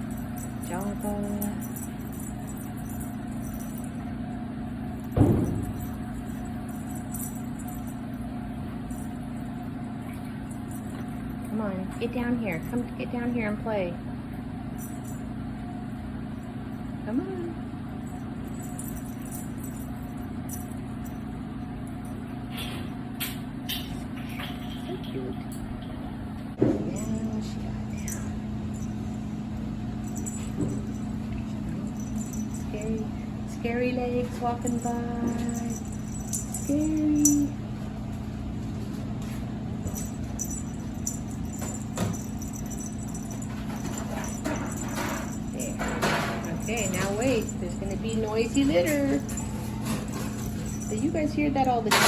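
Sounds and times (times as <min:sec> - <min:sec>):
faint metallic jingles: 0:00.0 - 0:04.1, 0:30.0 - 0:37.6, 0:39.8 - 0:52.0
low machine hum: 0:00.0 - 0:52.0.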